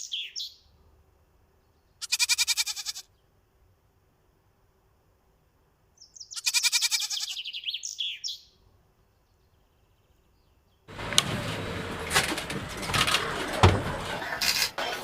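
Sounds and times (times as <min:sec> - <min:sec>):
bird trilling call: 0:00.0 - 0:00.6, 0:06.0 - 0:08.5.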